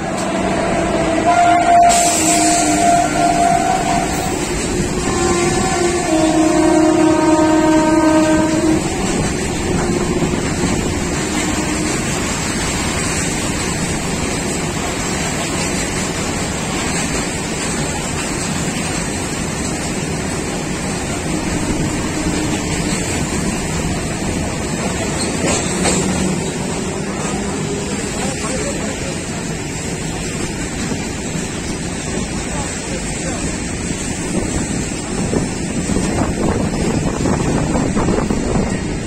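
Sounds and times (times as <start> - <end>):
train horn: 0.0 - 12.3, 21.1 - 23.3
freight train rumbling past: 0.0 - 39.0.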